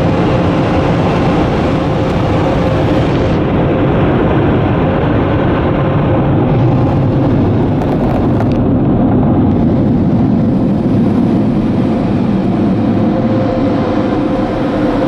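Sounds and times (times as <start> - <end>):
car wash dryers blowing air: 0.0 - 4.0.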